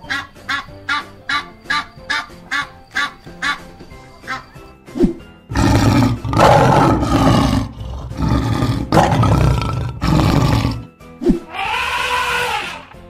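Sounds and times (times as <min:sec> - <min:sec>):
lion roaring: 0:05.5 - 0:10.9.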